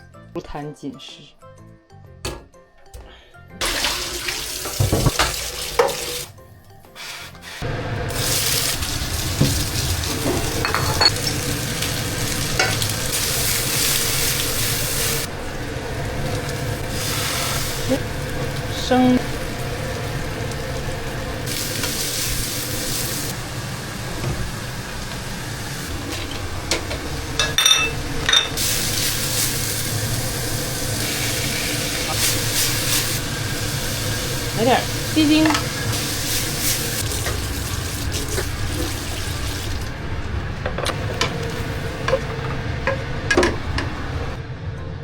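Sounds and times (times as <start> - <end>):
food sizzling in a pan: 3.6 - 40.0
spatula scraping a pan: 7.0 - 7.6
metal utensil clinking on cookware: 10.6 - 11.4, 27.4 - 28.6.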